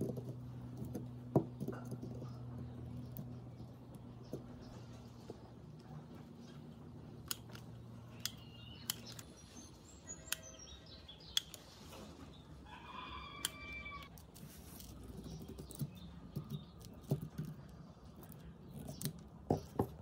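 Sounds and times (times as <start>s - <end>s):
small birds chirping: 0.0s - 20.0s
rooster crowing: 12.6s - 14.1s.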